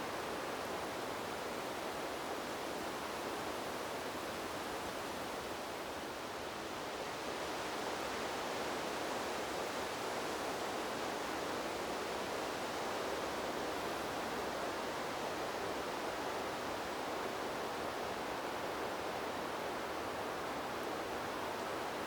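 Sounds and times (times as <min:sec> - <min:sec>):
wind blowing through trees: 0:13.2 - 0:22.0.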